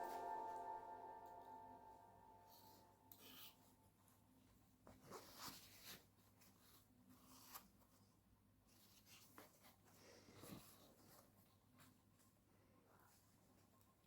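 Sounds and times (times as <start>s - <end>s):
faint rustling and scratching: 3.1s - 14.0s.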